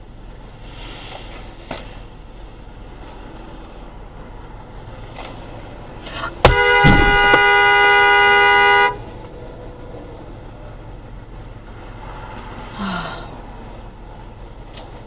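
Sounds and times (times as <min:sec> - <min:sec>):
sharp bang: 0:06.4 - 0:07.6
car horn blaring: 0:06.4 - 0:09.2.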